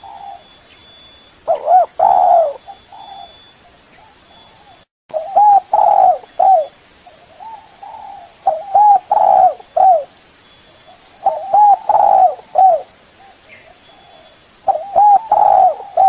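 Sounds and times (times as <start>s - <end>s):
dove cooing: 0.0s - 0.5s, 1.5s - 3.4s, 4.0s - 6.7s, 7.4s - 10.1s, 11.1s - 16.0s.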